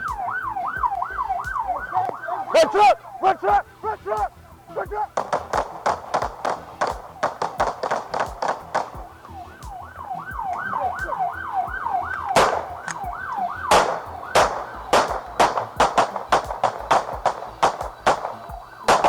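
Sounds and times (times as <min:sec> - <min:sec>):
siren yelping: 0:00.0 - 0:19.0
sharp bangs: 0:05.1 - 0:09.2, 0:10.4 - 0:19.0.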